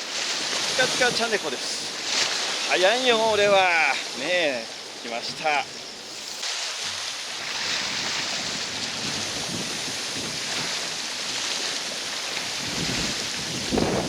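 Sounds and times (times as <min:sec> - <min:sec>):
waves washing against shore: 0:00.0 - 0:14.0
wind buffeting microphone: 0:00.6 - 0:02.0, 0:06.8 - 0:14.0.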